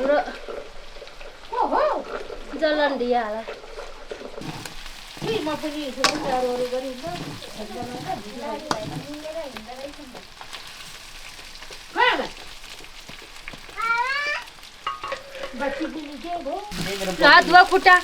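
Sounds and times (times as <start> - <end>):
chicken frying in oil: 0.0 - 18.0
faint voices: 4.4 - 10.3
stirring and scraping clicks: 4.4 - 13.9, 16.7 - 18.0.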